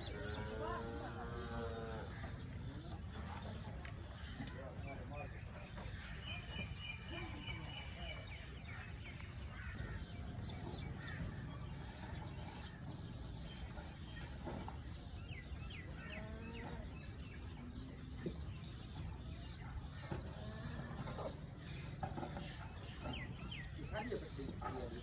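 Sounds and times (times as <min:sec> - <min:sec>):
small birds chirping: 0:00.0 - 0:25.0
cow mooing: 0:00.1 - 0:02.1.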